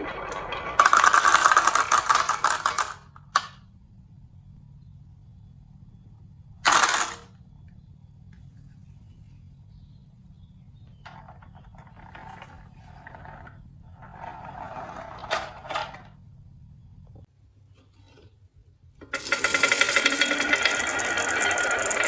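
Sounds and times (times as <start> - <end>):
marbles rolling down wooden run: 0.0 - 3.1, 6.7 - 7.2, 11.1 - 15.5, 19.1 - 22.0
low steady hum: 0.0 - 22.0.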